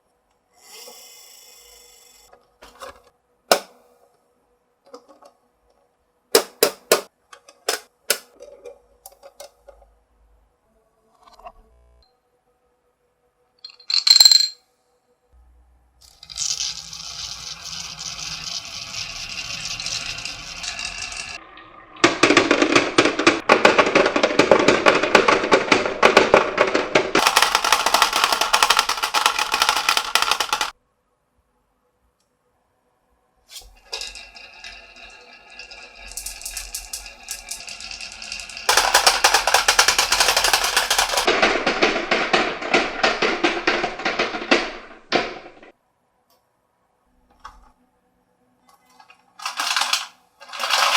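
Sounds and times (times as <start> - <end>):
marbles clattering down track: 13.6 - 14.6, 16.0 - 21.4, 22.0 - 30.8, 33.6 - 45.7, 49.4 - 50.9.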